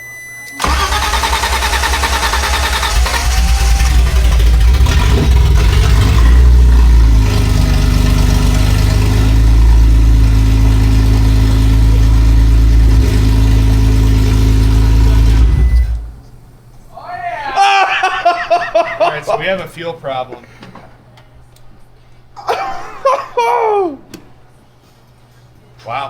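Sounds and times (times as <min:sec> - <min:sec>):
car engine starting and revving: 0:00.6 - 0:16.6.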